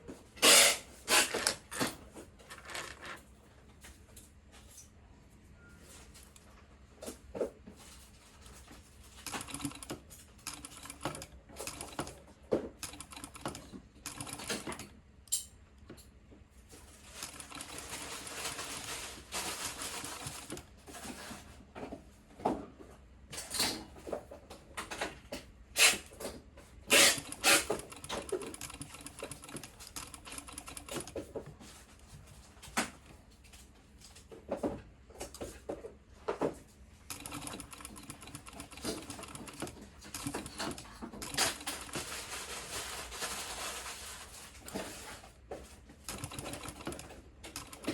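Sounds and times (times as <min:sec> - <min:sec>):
sewing machine stitching: 0:00.4 - 0:01.9, 0:09.1 - 0:14.9, 0:17.0 - 0:20.7, 0:26.9 - 0:31.2, 0:37.1 - 0:45.2, 0:46.0 - 0:47.9.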